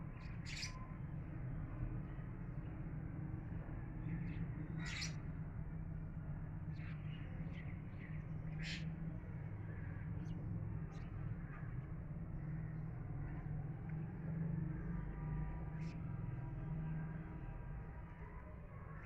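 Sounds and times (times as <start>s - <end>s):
low background rumble: 0.0s - 13.8s
sharp bird calls: 0.2s - 0.8s, 4.8s - 5.2s.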